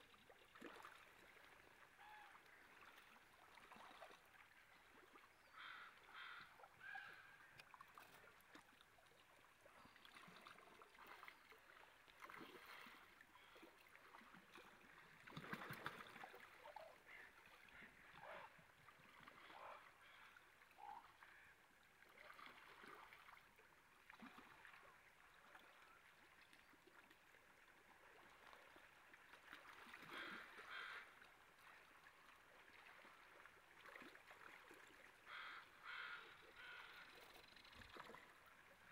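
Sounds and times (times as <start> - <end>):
faint running stream water: 0.0 - 38.9
water splashing: 0.3 - 1.7, 9.8 - 17.7.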